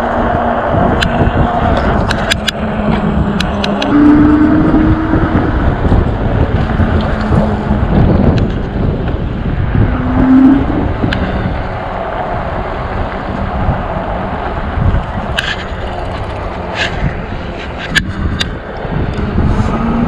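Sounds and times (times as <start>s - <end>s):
road rumble: 0.0s - 20.0s
wind rushing over microphone: 0.0s - 20.0s
short steady tone: 3.8s - 5.6s.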